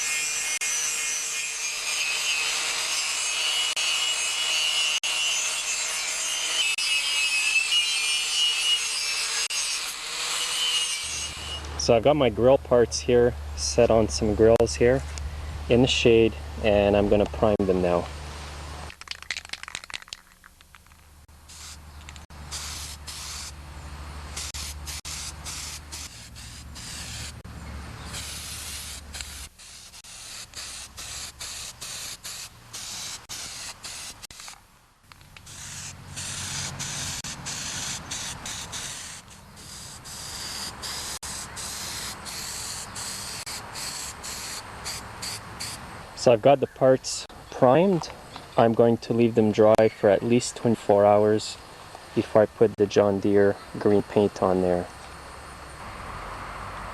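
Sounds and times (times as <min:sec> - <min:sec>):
spray paint hissing bursts: 0:21.4 - 0:23.6, 0:24.3 - 0:27.4, 0:28.1 - 0:34.6, 0:35.4 - 0:45.8.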